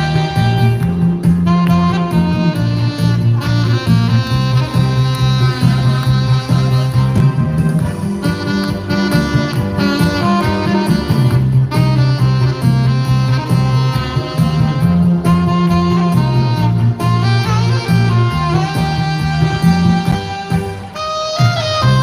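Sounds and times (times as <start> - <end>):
drums and bass accompaniment: 0.0 - 22.0
saxophone melody: 0.0 - 22.0.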